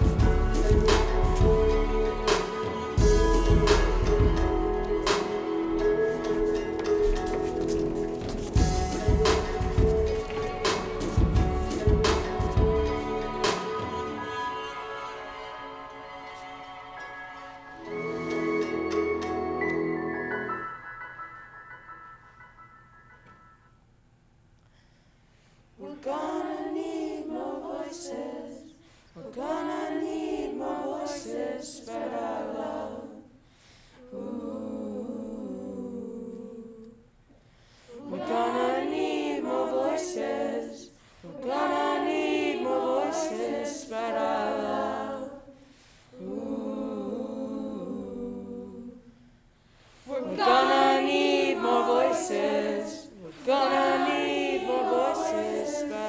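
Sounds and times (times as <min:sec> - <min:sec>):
group of voices singing a cappella: 0:00.0 - 0:16.0, 0:25.8 - 0:37.2, 0:37.8 - 0:56.0.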